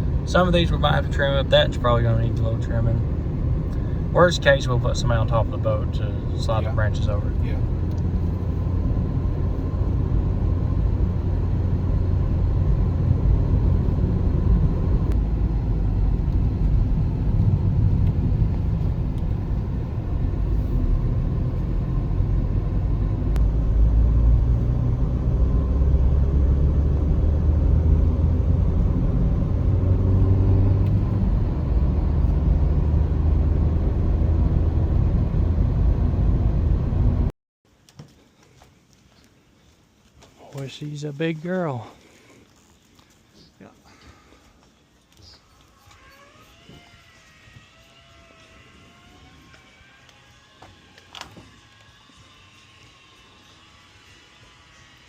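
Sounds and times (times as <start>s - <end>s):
road noise: 0.0s - 37.3s
car engine rumble: 0.0s - 37.4s.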